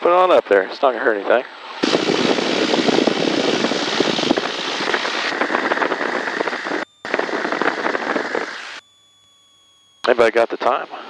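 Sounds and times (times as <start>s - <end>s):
propeller wash and wind rushing: 0.0s - 8.8s.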